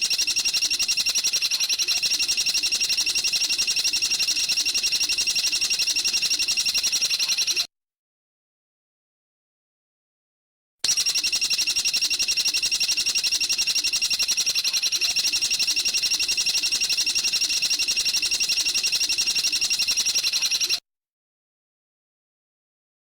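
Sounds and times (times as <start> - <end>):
songbird chattering trill: 0.0 - 7.6.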